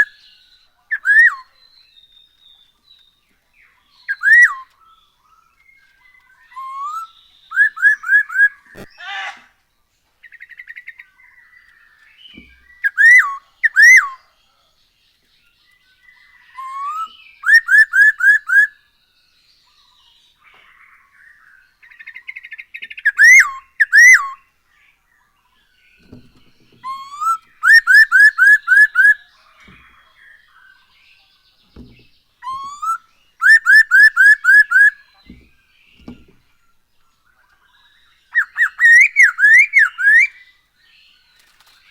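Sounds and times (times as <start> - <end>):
bird singing whistles: 0.9 - 2.4, 4.0 - 4.8, 5.8 - 9.0, 12.2 - 14.2, 16.4 - 18.8, 22.4 - 24.4, 26.0 - 29.3, 32.4 - 35.4, 37.8 - 40.5.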